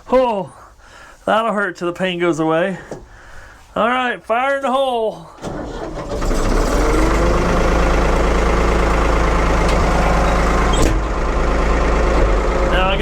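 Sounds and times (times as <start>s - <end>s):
backhoe engine running: 5.4s - 13.0s.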